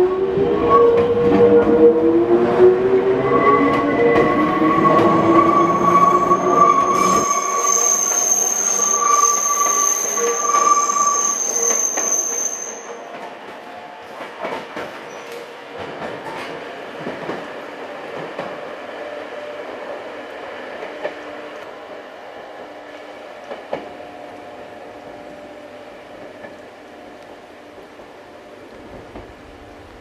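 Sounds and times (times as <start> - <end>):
train wheels squealing: 3.1 - 13.3, 15.0 - 15.5.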